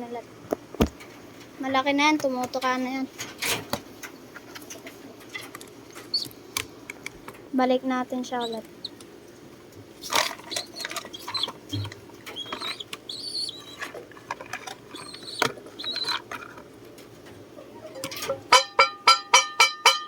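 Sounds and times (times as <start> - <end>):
birds clicking and scuffling: 0.5 - 18.8
pigeons squeaking: 4.2 - 6.6, 8.2 - 18.5
loud pulsed bird calls: 10.4 - 13.9, 14.8 - 16.3.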